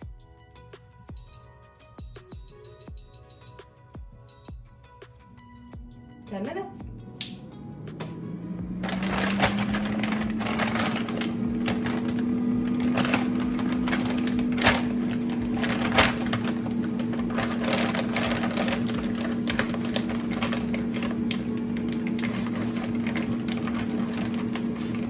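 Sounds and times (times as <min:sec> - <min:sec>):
air fryer fan humming: 0:05.3 - 0:25.0.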